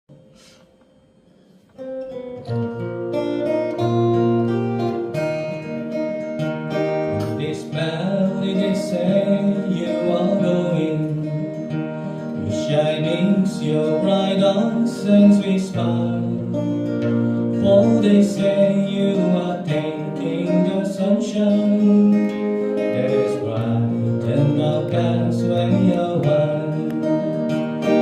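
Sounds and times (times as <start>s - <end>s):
acoustic guitar strummed and picked: 1.2s - 28.0s
person singing: 6.8s - 28.0s.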